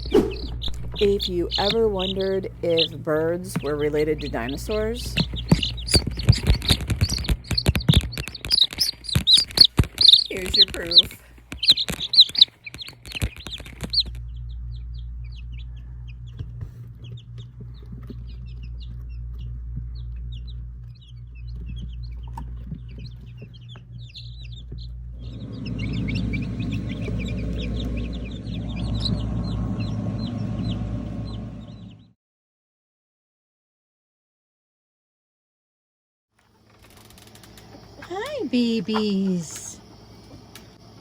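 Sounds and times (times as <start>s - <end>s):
chickens clucking: 0.0s - 14.2s, 25.2s - 31.5s
low hum: 0.0s - 32.1s.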